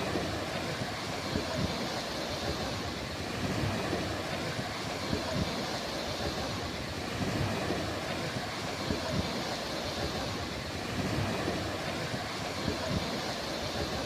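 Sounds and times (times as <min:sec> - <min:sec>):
ocean surf washing onto beach: 0:00.0 - 0:14.0.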